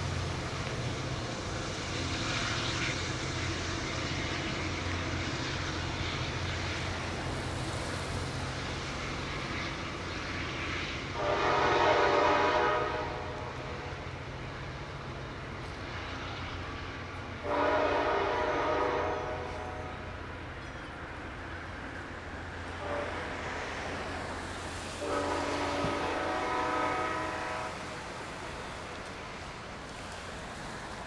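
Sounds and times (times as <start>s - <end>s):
passing train rumble: 0.0s - 31.0s
locomotive air horn: 11.1s - 14.0s, 17.4s - 20.1s, 22.8s - 23.7s, 25.0s - 28.1s.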